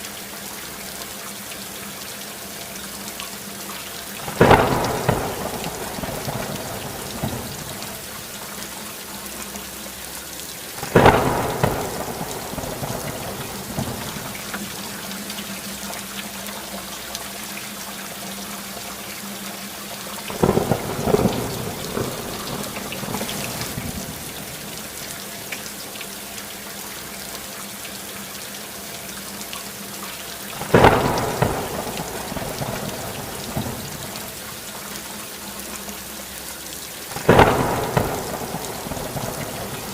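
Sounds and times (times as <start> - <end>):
steady rain: 0.0 - 39.9
thunderclaps rumbling: 4.2 - 8.3, 10.8 - 14.9, 20.3 - 25.1, 30.6 - 34.4, 37.2 - 39.9.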